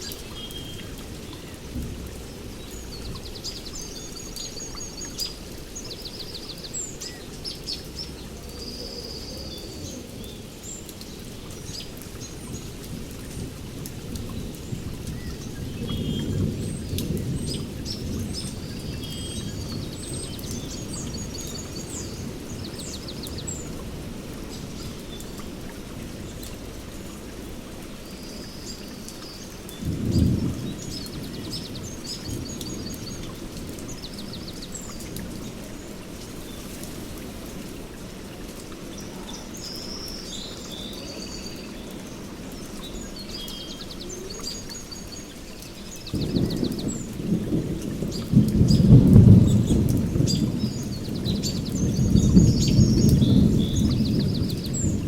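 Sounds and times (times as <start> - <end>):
birds chirping: 0.0 - 27.4, 28.0 - 38.0, 38.7 - 55.0
steady rain: 0.0 - 55.0
thunder rumbling: 12.3 - 26.9, 29.8 - 38.0, 46.0 - 55.0.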